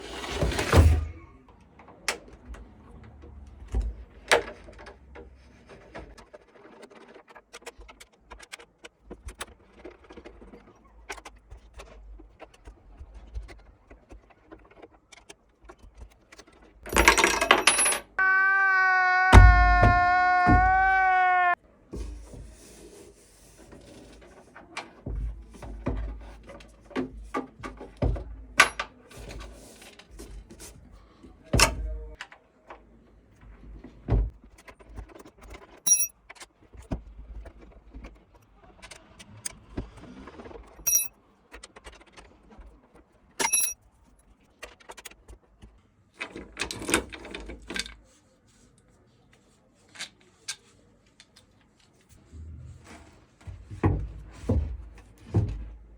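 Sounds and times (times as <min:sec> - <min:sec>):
handling clicks and knocks: 0:16.9 - 0:18.0, 0:35.9 - 0:36.1, 0:40.9 - 0:41.1, 0:43.4 - 0:43.8
metal parts clinking: 0:16.9 - 0:18.1, 0:35.9 - 0:36.1, 0:40.9 - 0:41.1, 0:43.4 - 0:43.8.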